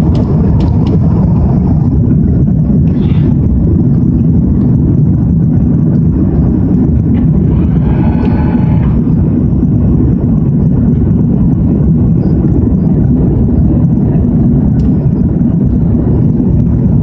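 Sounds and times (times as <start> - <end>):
jet engines rumbling: 0.0 - 17.0
rushing air: 0.0 - 17.0.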